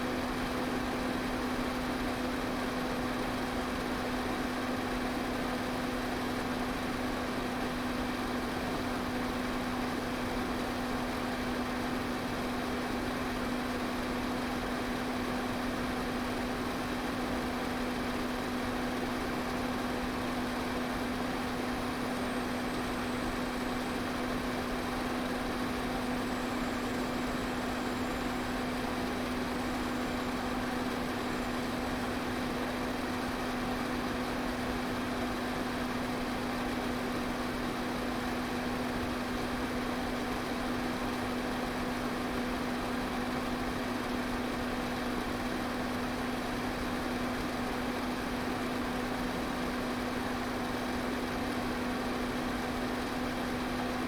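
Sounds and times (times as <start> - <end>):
electric fan running: 0.0 - 1.7.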